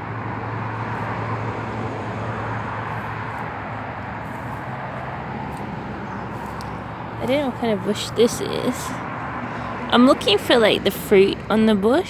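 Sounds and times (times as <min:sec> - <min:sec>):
continuous even rush: 0:02.4 - 0:12.0.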